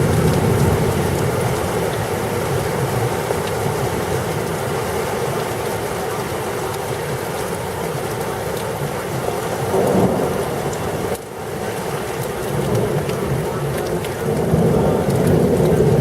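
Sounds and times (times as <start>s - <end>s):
low thunder rumble: 0.0s - 3.2s, 9.6s - 16.0s
heavy rain pouring: 0.0s - 16.0s.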